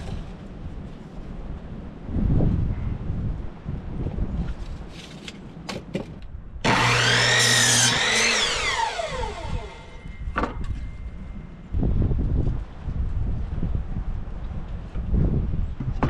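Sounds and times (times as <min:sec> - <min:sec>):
power tool motor whine: 0:06.7 - 0:10.2.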